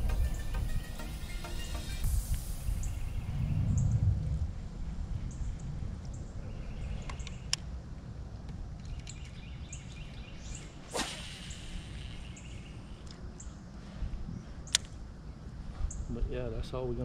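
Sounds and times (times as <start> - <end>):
low rumble: 2.0 - 7.1
fishing rod swishing: 10.6 - 12.4.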